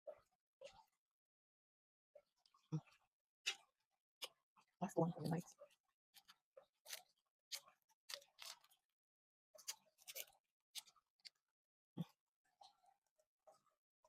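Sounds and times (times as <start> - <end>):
person chewing fruit: 6.2 - 8.8, 9.6 - 11.4.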